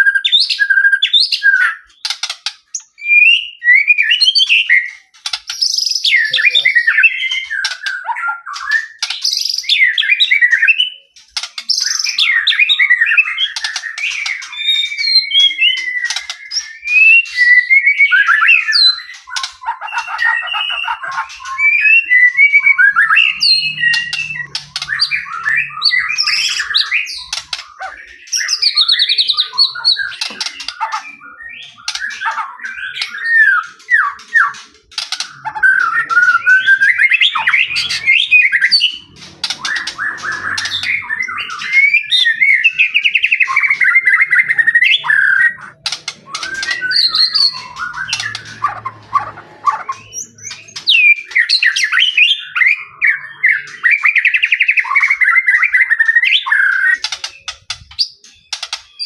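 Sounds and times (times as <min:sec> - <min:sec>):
songbird singing whistles and trills: 0:00.0 - 0:59.0.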